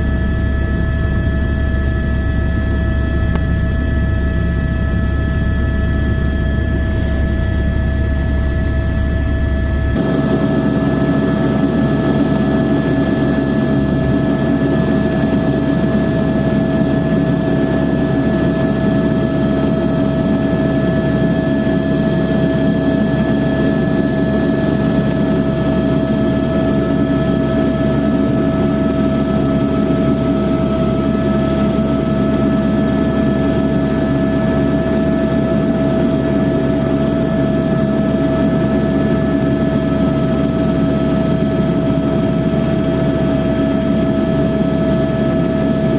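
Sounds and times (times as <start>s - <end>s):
steady whining tones: 0.0s - 15.9s
helicopter cabin drone: 0.0s - 45.9s.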